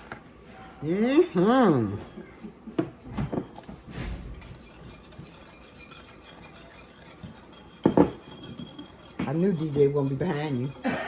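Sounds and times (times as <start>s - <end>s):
spoon stirring liquid: 3.2s - 11.0s.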